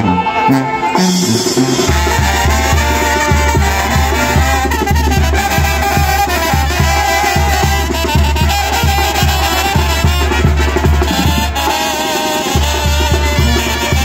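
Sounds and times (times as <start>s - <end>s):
latin brass band music: 0.0s - 14.0s
steady low beat: 0.9s - 8.0s.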